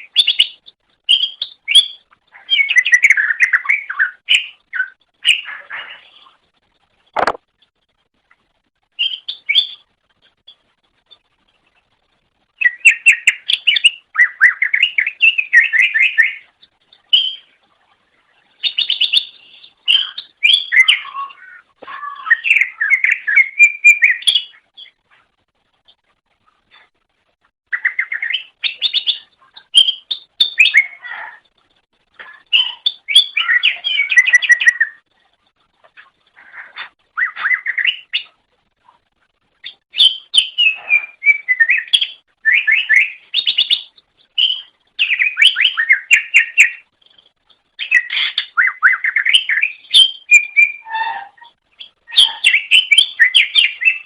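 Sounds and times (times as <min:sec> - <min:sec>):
bird singing warbling notes: 0:47.8 - 0:54.0.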